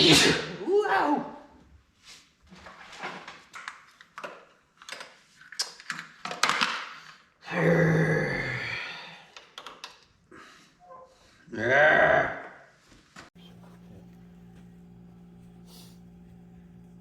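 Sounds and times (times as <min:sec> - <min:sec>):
small parts clicking and tapping: 0:09.4 - 0:10.1.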